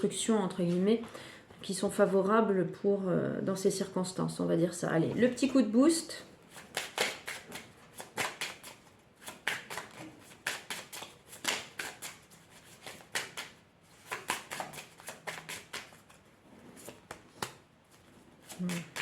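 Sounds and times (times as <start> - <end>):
cards being shuffled: 6.5 - 16.2, 16.8 - 19.0.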